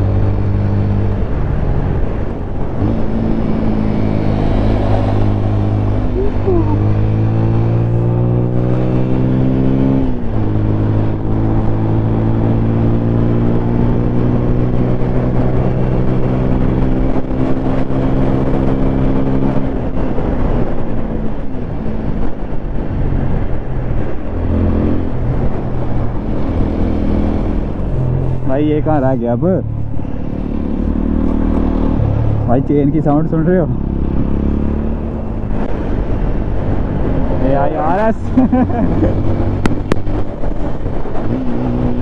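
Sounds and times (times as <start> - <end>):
wind and road noise: 0.0 - 42.0
motorcycle engine: 23.4 - 42.0.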